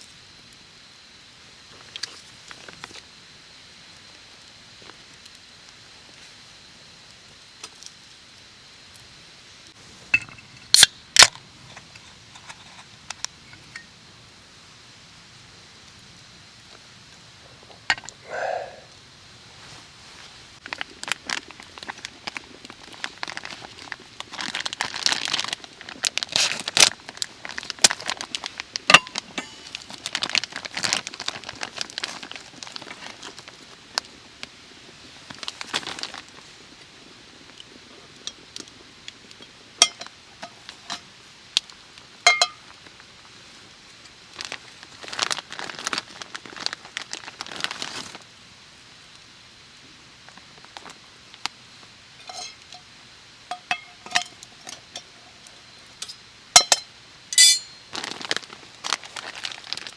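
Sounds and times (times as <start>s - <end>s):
crinkly packaging crumpled: 19.6s - 34.2s, 35.1s - 36.5s, 44.3s - 48.3s, 50.3s - 51.4s, 57.8s - 59.9s
light clinks: 52.2s - 52.8s, 56.0s - 57.9s.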